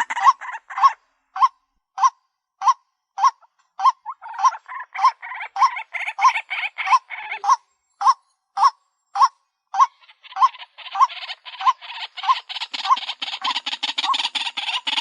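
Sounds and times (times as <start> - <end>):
bird chatter: 0.0 - 0.9, 4.0 - 8.1, 9.1 - 15.0.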